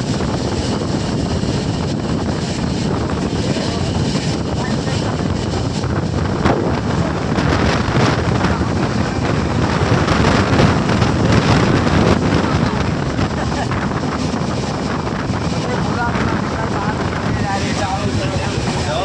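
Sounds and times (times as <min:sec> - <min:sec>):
moving train running noise: 0:00.0 - 0:19.0
wind buffeting microphone: 0:00.0 - 0:19.0.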